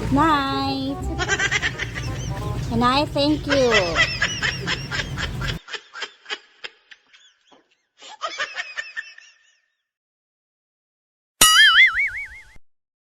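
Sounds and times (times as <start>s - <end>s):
cockatiels chirping: 3.6s - 5.6s.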